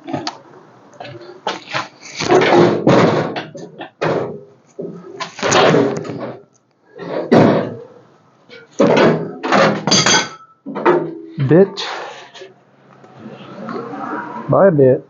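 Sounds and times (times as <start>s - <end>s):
loud metal bangs: 1.6s - 6.4s, 8.7s - 11.1s.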